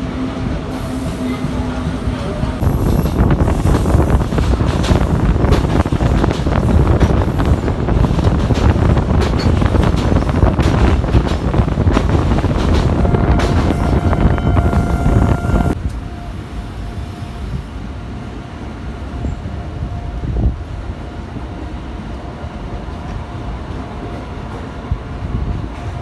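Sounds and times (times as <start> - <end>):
train rumbling: 0.0 - 26.0
train wheels knocking: 1.4 - 15.8
wind buffeting microphone: 1.8 - 16.3, 19.1 - 26.0.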